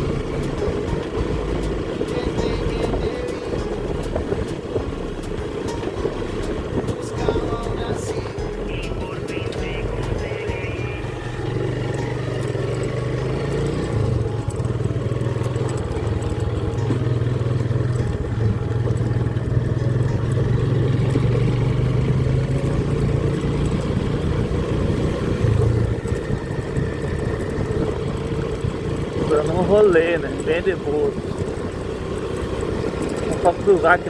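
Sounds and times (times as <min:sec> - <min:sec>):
small motorcycle engine running: 0:00.0 - 0:34.0
wind and road noise: 0:00.0 - 0:34.0.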